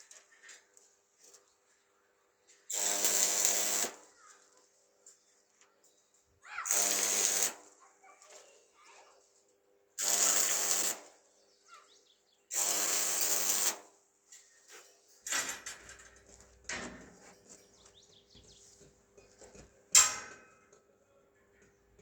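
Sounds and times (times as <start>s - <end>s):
rushing power tool: 2.7s - 4.0s, 6.7s - 7.6s, 10.0s - 11.0s.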